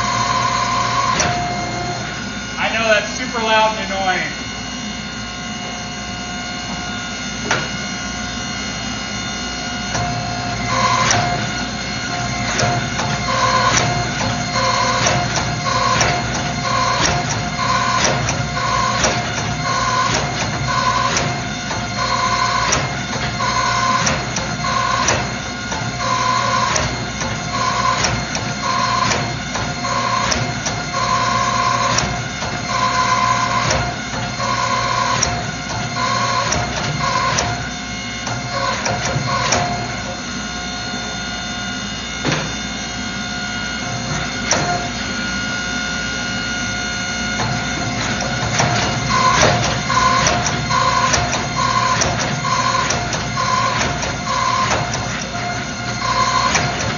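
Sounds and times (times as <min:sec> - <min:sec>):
machinery humming: 0:00.0 - 0:56.9
rhythmic mechanical knocking: 0:09.8 - 0:40.2, 0:47.3 - 0:56.9.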